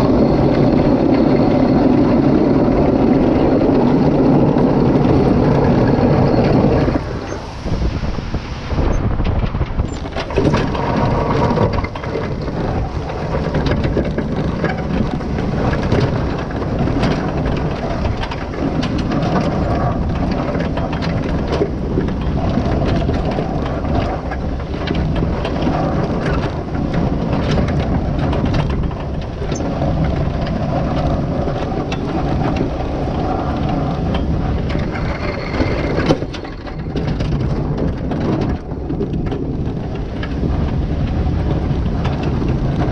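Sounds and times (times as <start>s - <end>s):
vehicle engine running: 0.0s - 42.9s
knocking and rattling: 9.2s - 42.9s.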